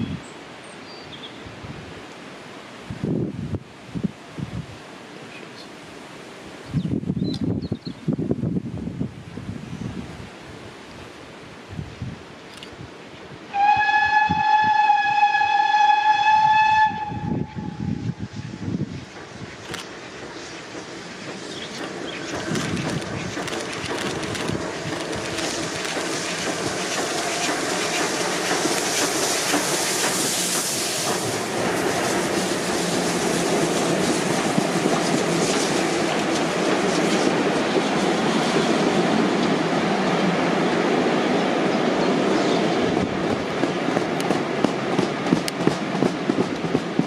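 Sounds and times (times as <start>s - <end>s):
passenger train passing: 0.0s - 47.0s
train hiss: 9.2s - 47.0s
wheels clicking over rail joints: 19.1s - 31.4s.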